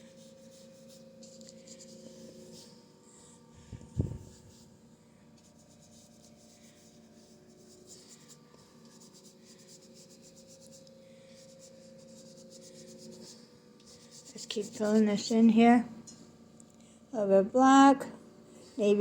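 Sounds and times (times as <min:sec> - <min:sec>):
paintbrush scrubbing on canvas: 0:00.0 - 0:02.8, 0:03.6 - 0:04.7, 0:05.4 - 0:15.6.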